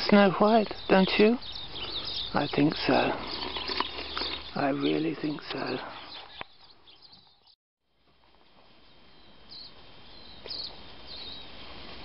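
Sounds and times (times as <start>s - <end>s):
woodland ambience: 0.0s - 12.0s
high bird chirps: 0.4s - 7.6s, 9.1s - 11.5s.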